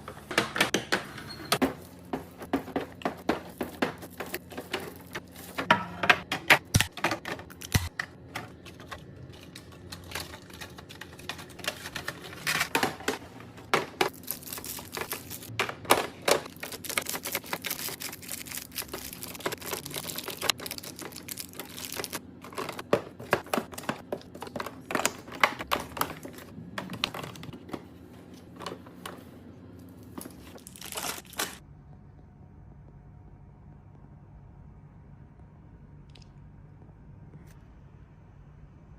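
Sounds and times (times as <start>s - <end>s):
packaging clicks and knocks: 0.3s - 27.9s
plastic crinkling: 13.9s - 27.5s, 30.1s - 31.6s.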